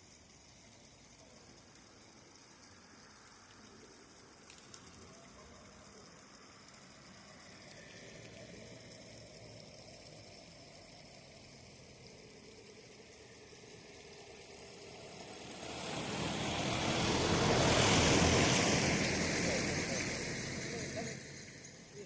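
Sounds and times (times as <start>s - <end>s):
river water rushing: 14.0s - 21.5s.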